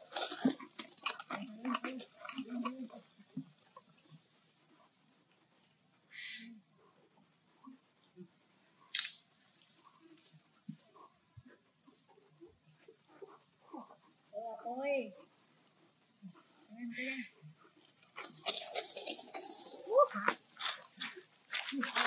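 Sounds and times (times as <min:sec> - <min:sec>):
small bird chirping: 0:00.8 - 0:01.3, 0:03.8 - 0:11.1, 0:11.8 - 0:12.2, 0:12.8 - 0:15.3, 0:16.0 - 0:21.7.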